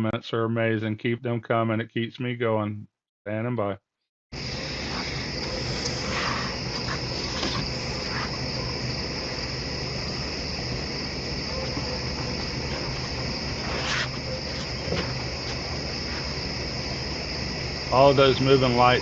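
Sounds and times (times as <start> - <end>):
crickets chirring: 4.4 - 19.0.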